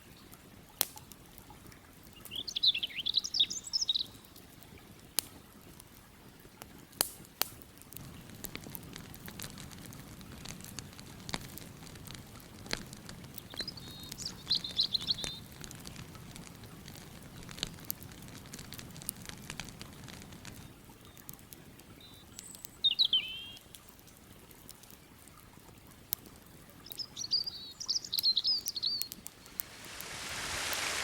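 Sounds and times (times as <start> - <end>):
campfire crackling and popping: 0.1 - 31.0
bird chirping: 26.9 - 31.0.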